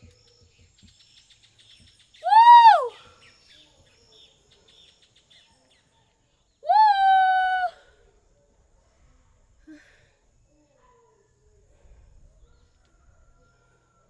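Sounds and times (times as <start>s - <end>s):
high wordless vocal calls: 2.2s - 2.9s, 6.7s - 7.8s
faint high chirping: 2.2s - 4.8s.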